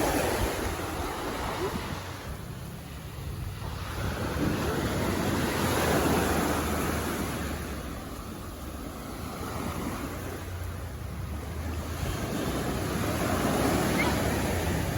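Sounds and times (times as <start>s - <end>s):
waves washing onto beach: 0.0s - 14.9s
wind rumble on microphone: 0.0s - 14.9s.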